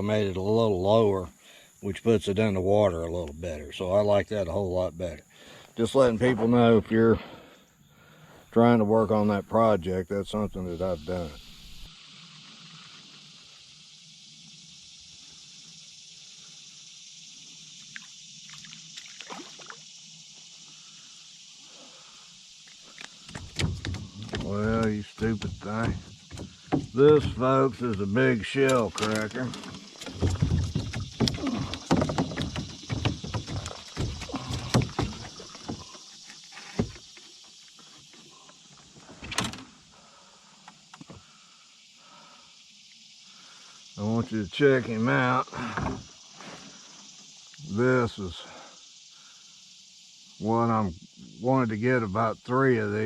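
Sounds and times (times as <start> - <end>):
steady high hiss: 0.0 - 53.0
water trickling and splashing: 17.4 - 39.2
thumps in a canoe: 23.2 - 28.1, 28.7 - 38.2, 45.6 - 46.7.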